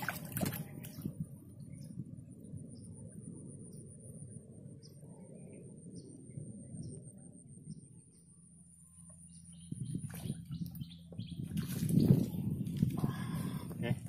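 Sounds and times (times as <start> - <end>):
fish splashing: 0.0 - 1.0
low rumble: 0.0 - 14.0
small birds chirping: 4.7 - 14.0.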